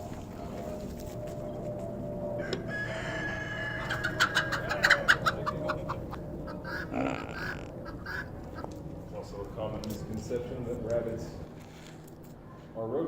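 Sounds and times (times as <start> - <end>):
rooster crowing: 2.2 - 8.3.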